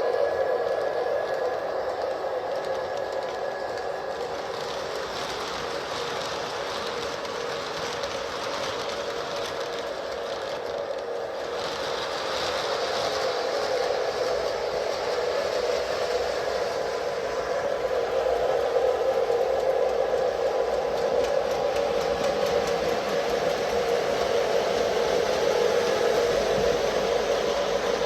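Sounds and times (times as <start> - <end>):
model train motors whirring: 0.0 - 28.0.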